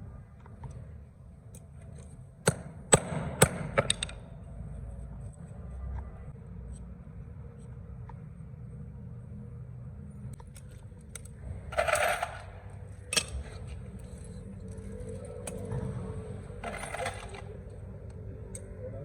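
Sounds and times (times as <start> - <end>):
steady low hum: 0.0 - 19.0
metal tools clinking and scraping: 11.6 - 15.7, 16.6 - 17.8.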